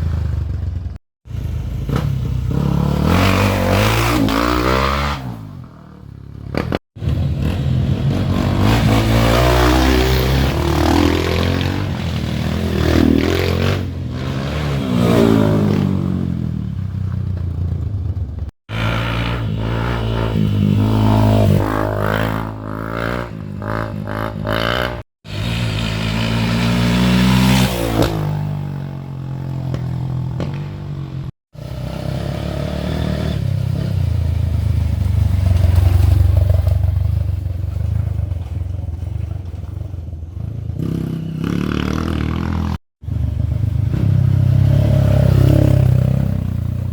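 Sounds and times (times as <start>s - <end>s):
dirt bike engines revving: 0.9s - 34.4s.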